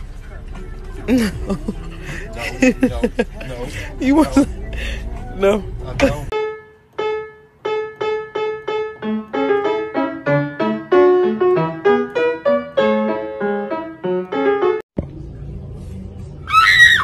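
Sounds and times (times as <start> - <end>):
piano melody: 6.3 - 14.9
low background rumble: 15.0 - 17.0.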